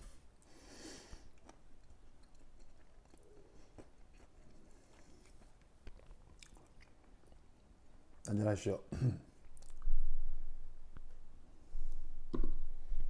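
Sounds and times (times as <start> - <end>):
person chewing food: 0.4 - 8.2, 9.4 - 9.9.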